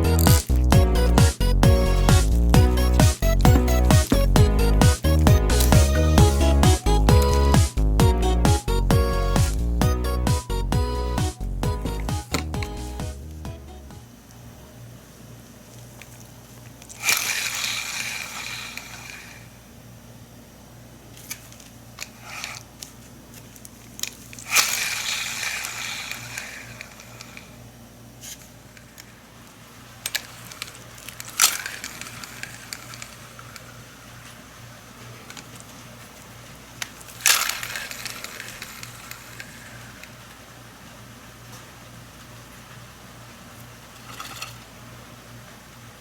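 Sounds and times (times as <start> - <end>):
handling clicks: 0.0 - 7.8, 11.2 - 13.5
fishing reel spinning whir: 16.9 - 19.6, 24.4 - 27.6, 30.1 - 33.9, 37.1 - 40.2.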